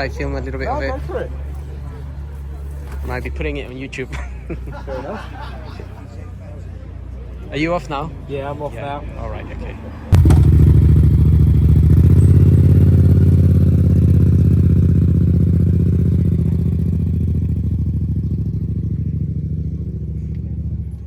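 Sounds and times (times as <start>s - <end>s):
motorcycle engine exhaust beat: 10.1s - 21.0s.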